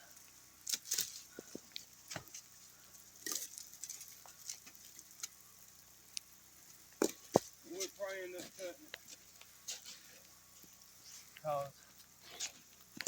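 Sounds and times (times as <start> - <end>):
ice ticking and crackling: 0.0 - 13.0
ice crunch: 0.6 - 5.4.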